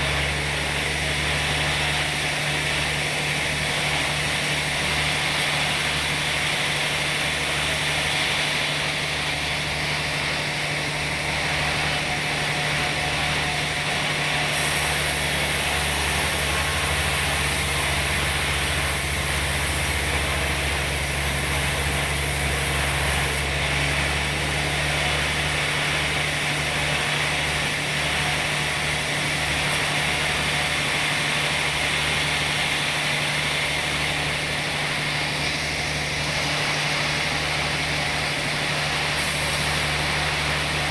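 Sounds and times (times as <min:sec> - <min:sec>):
sawmill motor drone: 0:00.0 - 0:40.9
high hiss: 0:14.5 - 0:23.4.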